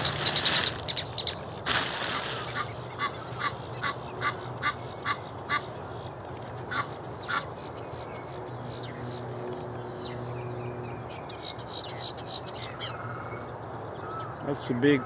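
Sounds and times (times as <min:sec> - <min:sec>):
waterfowl short calls: 0:02.4 - 0:05.6.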